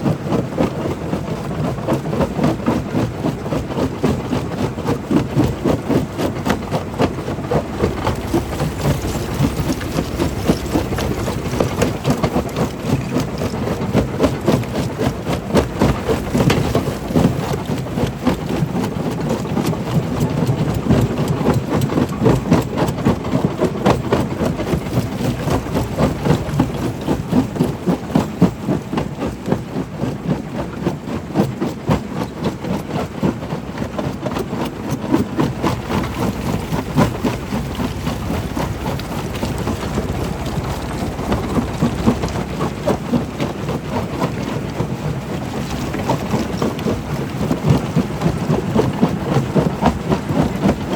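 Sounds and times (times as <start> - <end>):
rocks clattering and rattling: 5.4 - 29.5, 34.9 - 50.9
stone crusher rumble: 6.2 - 18.9, 23.4 - 28.8, 35.3 - 49.8.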